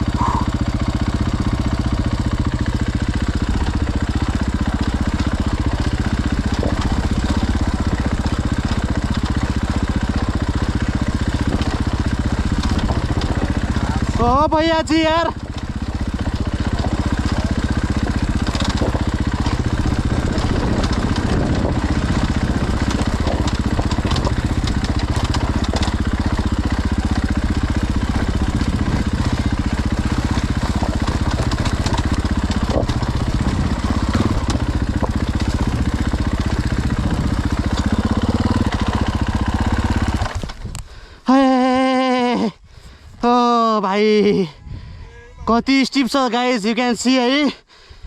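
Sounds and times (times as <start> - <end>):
dirt bike engine running: 0.0 - 48.0
short wavering call: 0.1 - 0.5.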